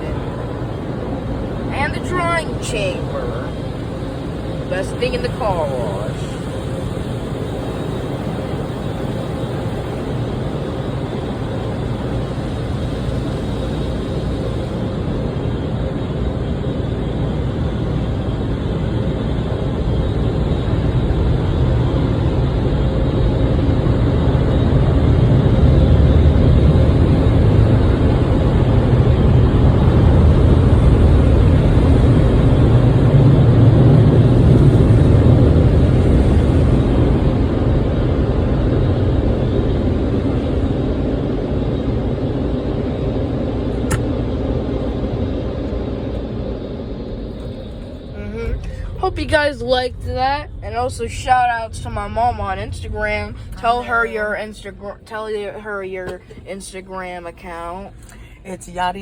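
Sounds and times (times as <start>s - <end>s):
car wash dryer blowers: 0.0s - 57.9s.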